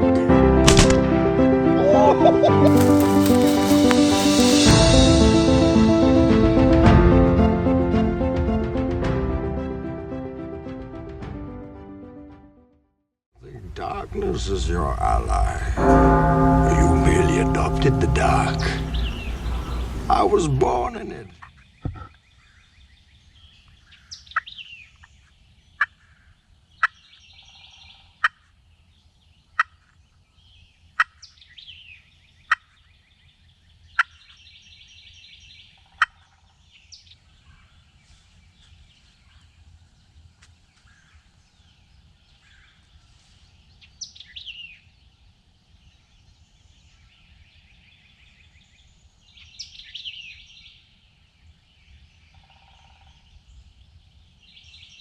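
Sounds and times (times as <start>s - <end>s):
bird calls: 18.6s - 22.7s.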